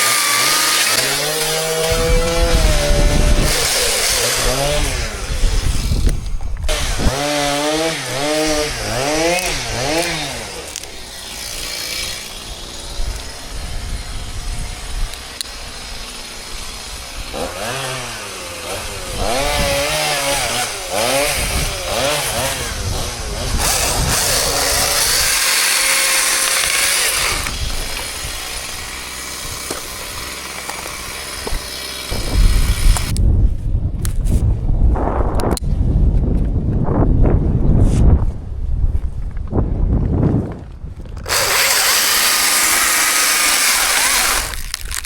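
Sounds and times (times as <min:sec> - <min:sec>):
chainsaw running at high revs: 0:00.0 - 0:33.2, 0:41.2 - 0:45.0.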